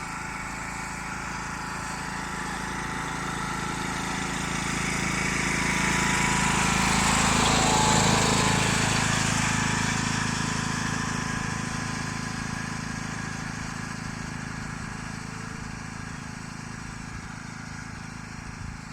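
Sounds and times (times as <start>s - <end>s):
tractor engine running: 0.0s - 18.9s.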